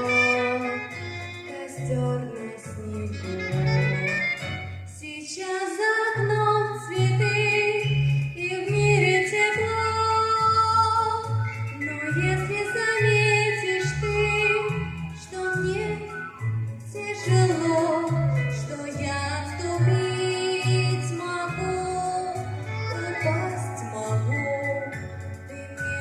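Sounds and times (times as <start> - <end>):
person singing: 0.0 - 4.4, 16.9 - 26.0
bass line: 0.0 - 5.0, 6.2 - 26.0
instrumental accompaniment: 0.0 - 5.0, 6.8 - 26.0.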